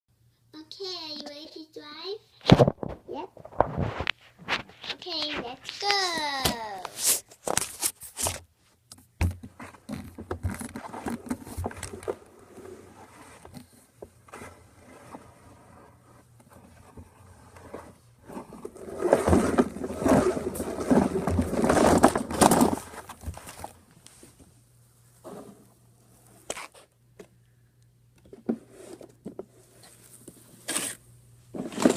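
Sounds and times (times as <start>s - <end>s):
toys scraping and rubbing: 9.6s - 23.1s, 28.5s - 31.0s.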